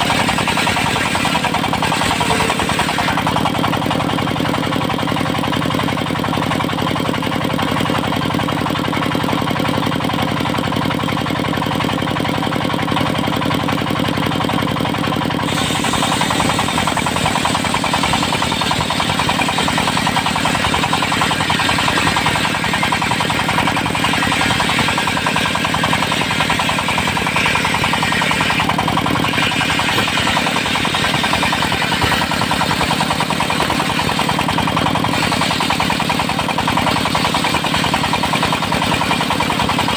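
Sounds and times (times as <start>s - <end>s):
circular blade cutting wood: 0.0s - 5.3s, 15.4s - 39.9s
sawmill engine running: 0.0s - 39.9s.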